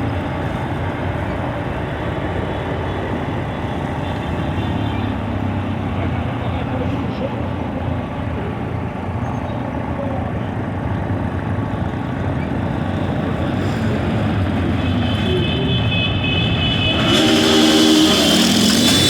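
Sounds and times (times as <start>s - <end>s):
racing truck engines: 0.0s - 19.0s
rising whine: 16.9s - 19.0s.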